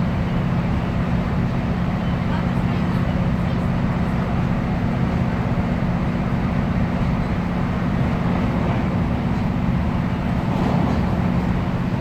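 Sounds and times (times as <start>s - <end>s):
diesel train engine drone: 0.0s - 12.0s
rail noise: 4.4s - 12.0s.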